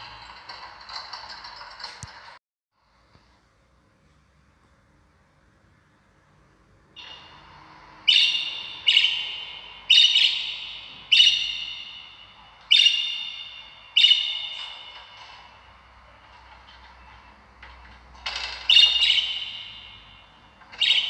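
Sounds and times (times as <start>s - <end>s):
bird calling loudly: 8.0s - 15.2s, 18.4s - 21.0s.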